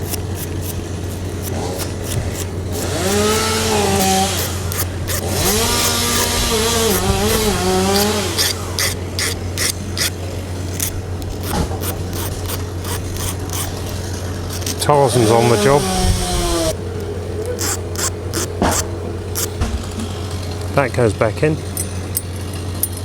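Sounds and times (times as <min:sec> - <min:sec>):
chainsaw revving: 0:00.0 - 0:16.8, 0:17.6 - 0:19.6
sharp scraping clicks: 0:00.0 - 0:19.6
low hum: 0:00.0 - 0:23.0.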